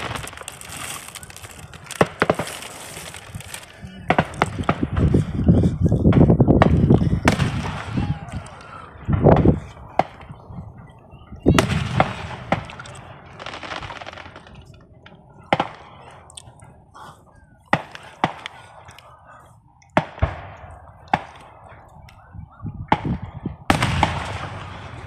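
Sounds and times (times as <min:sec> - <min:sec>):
fireworks hissing: 0:00.0 - 0:05.0
fireworks bangs: 0:00.0 - 0:05.4, 0:06.1 - 0:10.5, 0:11.4 - 0:16.0, 0:17.7 - 0:18.8, 0:19.9 - 0:21.8, 0:22.8 - 0:25.0.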